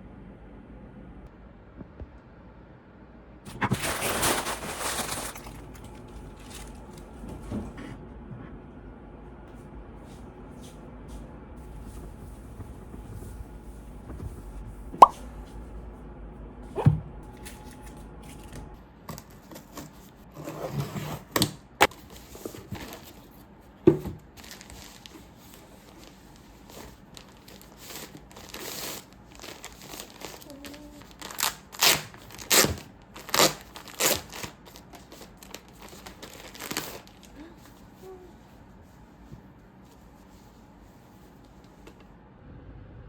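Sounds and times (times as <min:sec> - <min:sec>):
packaging crinkling and tearing: 0:03.5 - 0:07.1, 0:24.3 - 0:37.5.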